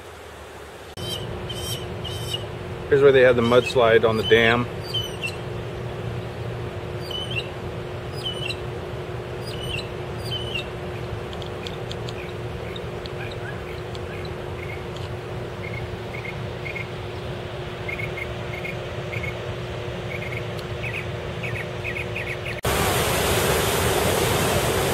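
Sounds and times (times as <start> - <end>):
low steady hum: 0.0 - 24.9
small birds chirping: 1.0 - 2.5, 3.1 - 8.6, 9.4 - 22.6
steady rushing noise: 22.5 - 24.9.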